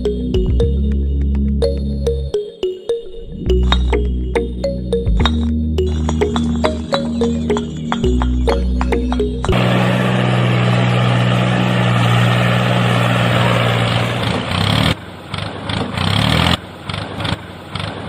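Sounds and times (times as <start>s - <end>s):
tractor engine running: 3.6s - 18.0s.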